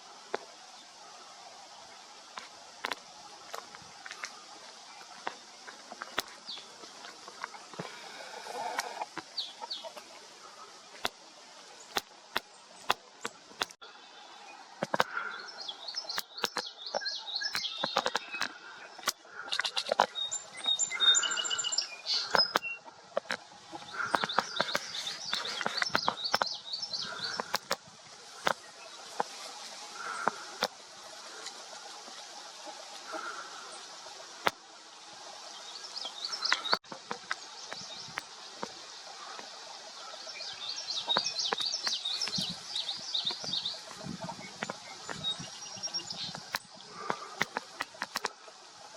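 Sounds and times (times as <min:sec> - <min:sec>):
songbirds chirping: 0:00.0 - 0:48.9
sharp clicks: 0:11.9 - 0:13.8, 0:14.8 - 0:15.2, 0:16.0 - 0:20.2, 0:22.2 - 0:26.5, 0:27.2 - 0:27.8, 0:46.3 - 0:48.3.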